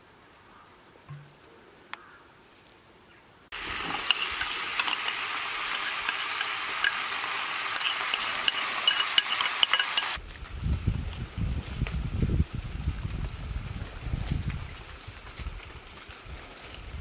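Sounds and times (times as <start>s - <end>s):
food sizzling in hot oil: 3.5s - 10.2s.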